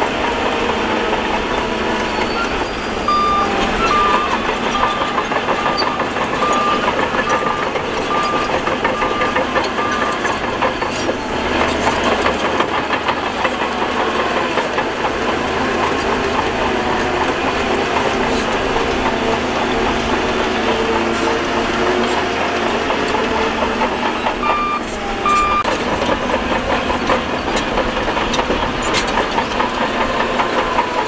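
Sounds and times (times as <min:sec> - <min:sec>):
heavy machinery engines under load: 0:00.0 - 0:31.0
reversing alarm beeping: 0:01.8 - 0:14.4, 0:16.2 - 0:25.7
mechanical rattle and ticking: 0:03.3 - 0:24.5.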